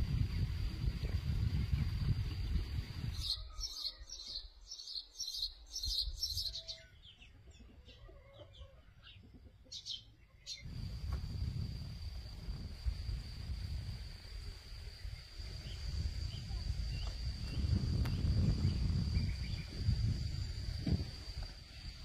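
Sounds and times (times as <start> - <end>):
wind rumble on microphone: 0.0 - 3.8, 10.6 - 22.0
birds chirping: 2.8 - 10.7.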